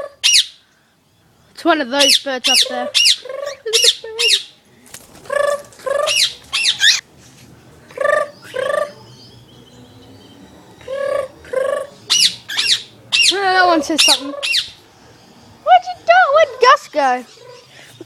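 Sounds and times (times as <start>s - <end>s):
bird chirping: 0.0s - 4.6s, 5.3s - 7.0s, 7.9s - 18.0s.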